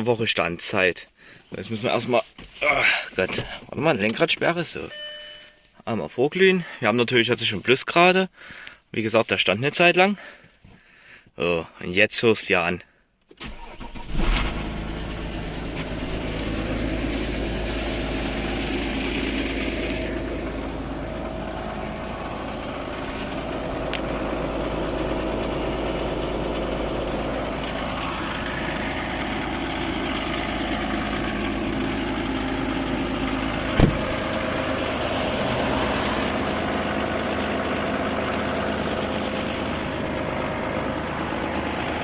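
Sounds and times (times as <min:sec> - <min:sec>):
diesel engine idling: 0:13.5 - 0:42.0
short thump: 0:33.7 - 0:34.2.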